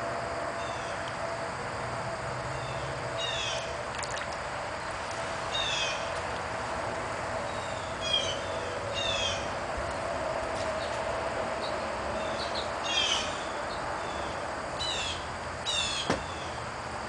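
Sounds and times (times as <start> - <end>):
bird calling: 5.5 - 6.1, 7.5 - 9.5.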